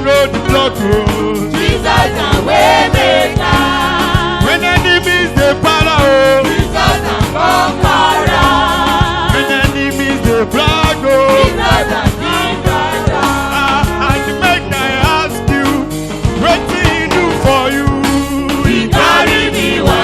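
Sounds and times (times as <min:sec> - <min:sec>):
band with drum beat: 0:00.0 - 0:20.0
choir singing gospel: 0:00.0 - 0:20.0.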